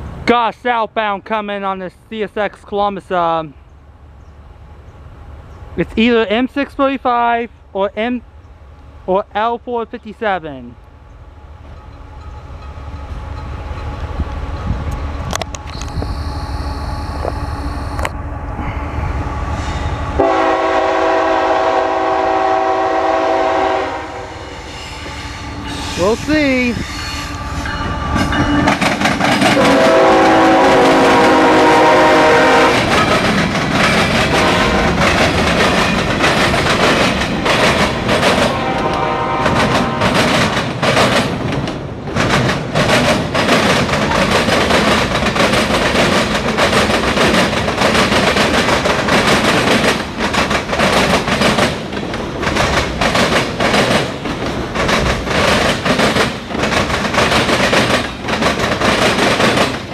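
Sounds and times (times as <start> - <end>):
train horn blasts: 19.3 - 26.2, 29.5 - 33.0, 34.3 - 35.0, 38.5 - 40.2
train wheels clickety-clack: 24.6 - 59.9.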